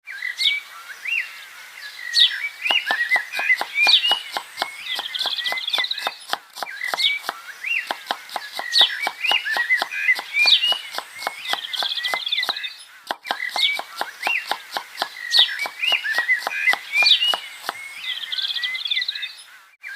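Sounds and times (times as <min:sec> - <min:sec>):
small birds chirping: 0:00.1 - 0:19.9
sharp clicks: 0:02.6 - 0:17.9.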